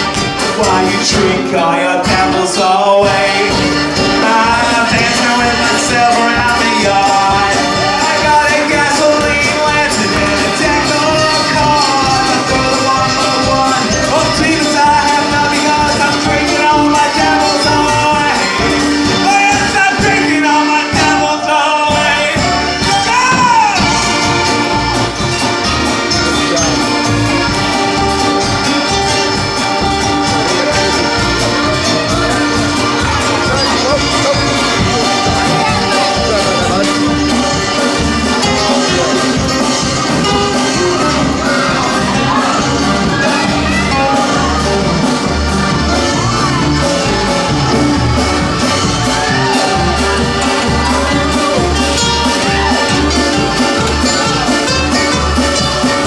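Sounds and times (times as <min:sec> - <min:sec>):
crowd shouting: 0:00.0 - 0:56.0
live band held notes: 0:00.0 - 0:56.0
pulsing bass line: 0:00.0 - 0:56.0
steady percussive beat: 0:00.0 - 0:56.0.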